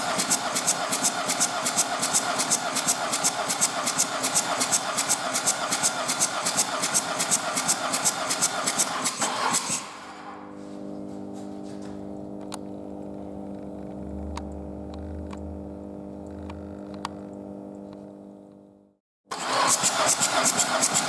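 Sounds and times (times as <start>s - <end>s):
faint steady hum: 10.7s - 19.0s.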